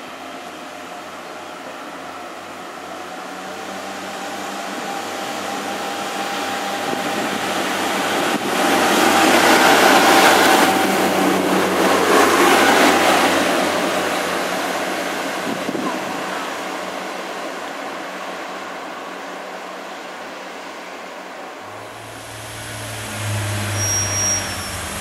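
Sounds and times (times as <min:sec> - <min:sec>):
diesel railbus passing: 0:00.0 - 0:25.0
steady whine: 0:21.6 - 0:25.0.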